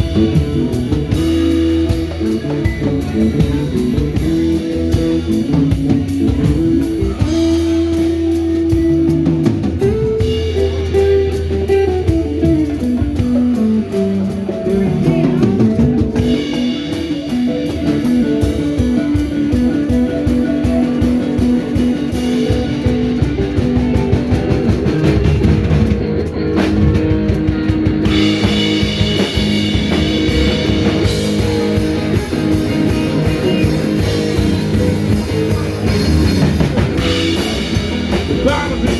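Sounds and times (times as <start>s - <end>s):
bass guitar: 0.0s - 38.9s
drum kit: 0.0s - 38.9s
lead guitar: 0.0s - 38.9s.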